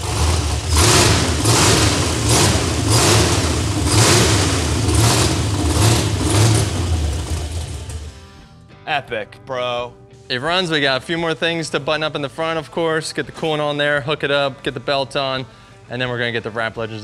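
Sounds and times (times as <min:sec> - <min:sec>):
engine revving over idle: 0:00.0 - 0:08.4.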